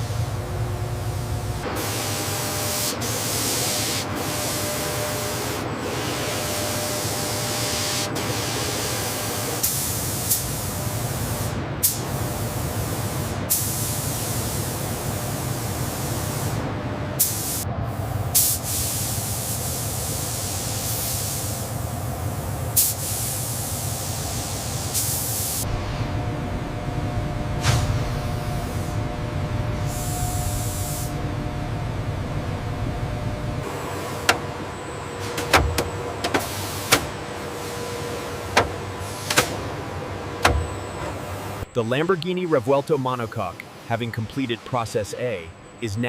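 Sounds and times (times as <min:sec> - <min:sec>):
low hum: 0:00.0 - 0:01.8, 0:25.6 - 0:36.2
steady hissing noise: 0:07.0 - 0:34.6, 0:41.3 - 0:46.0.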